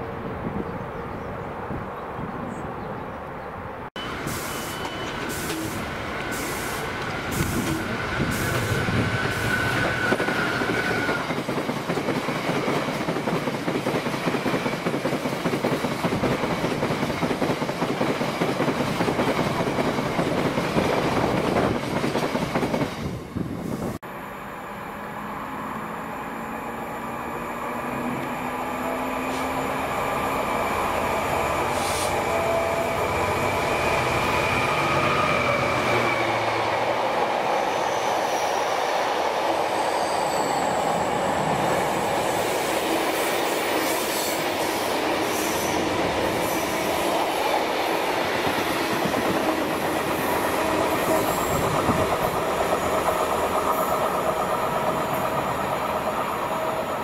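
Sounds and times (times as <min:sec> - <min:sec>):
diesel locomotive engine hum: 0:18.6 - 0:37.9, 0:40.6 - 0:57.0.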